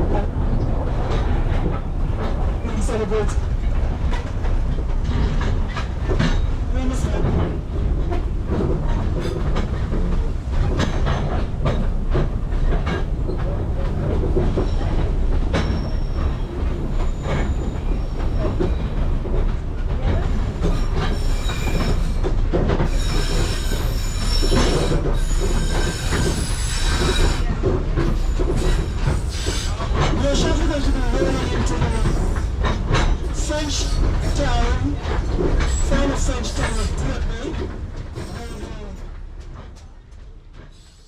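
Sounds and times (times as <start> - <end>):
train rumbling on rails: 0.0 - 41.0
train wheel clicks: 0.6 - 41.0
wheels squealing on rails: 12.6 - 39.2, 40.6 - 41.0.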